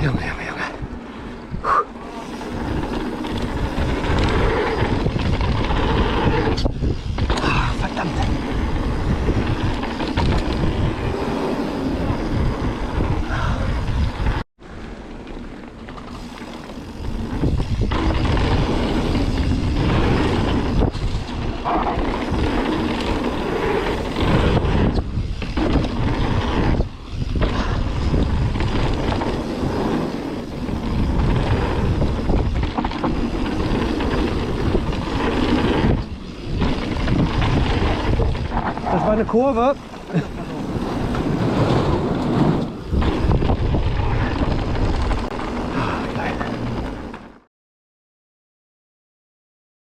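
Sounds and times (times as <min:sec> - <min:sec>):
wind rushing over microphone: 0:00.0 - 0:14.5, 0:16.7 - 0:47.4
bike tyres rattling over ground: 0:02.0 - 0:14.4, 0:15.1 - 0:47.4.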